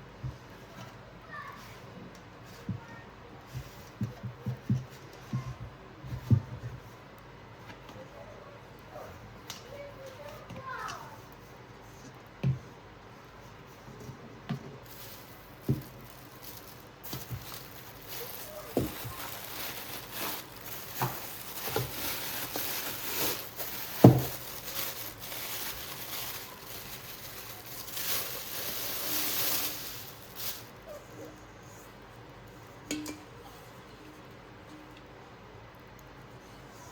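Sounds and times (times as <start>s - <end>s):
plastic wrapping crinkling: 14.8s - 31.0s
light knocks and thuds: 23.6s - 25.6s.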